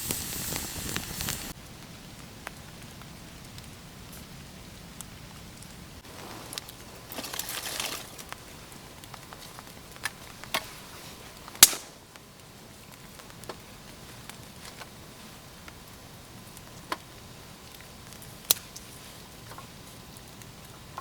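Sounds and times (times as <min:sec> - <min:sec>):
rustling: 0:06.0 - 0:12.0.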